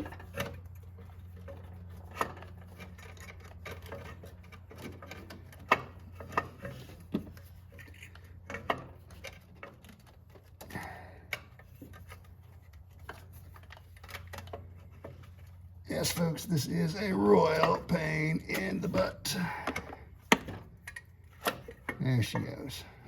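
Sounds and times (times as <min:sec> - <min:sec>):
tools clicking and tapping on metal: 0:00.0 - 0:15.5
steady low hum: 0:10.6 - 0:23.0.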